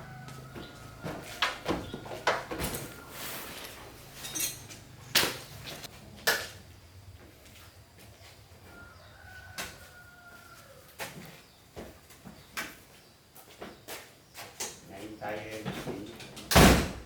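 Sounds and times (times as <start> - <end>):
metal tools clinking: 2.7 - 5.9.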